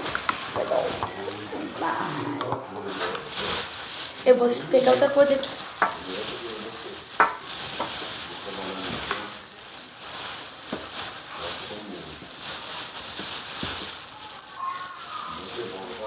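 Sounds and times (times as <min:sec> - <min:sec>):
small objects being handled: 0:00.0 - 0:16.0.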